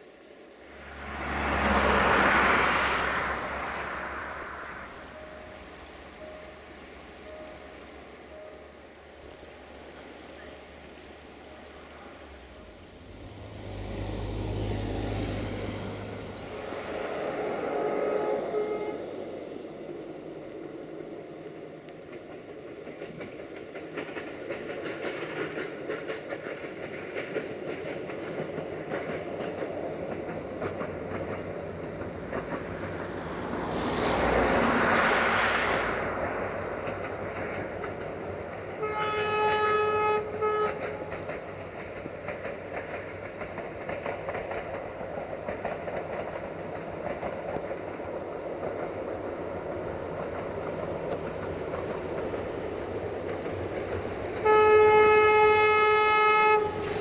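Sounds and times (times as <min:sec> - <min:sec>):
passenger train rumbling past: 0:00.0 - 0:57.0
locomotive horn blast: 0:15.5 - 0:19.5, 0:38.7 - 0:41.2, 0:54.4 - 0:57.0.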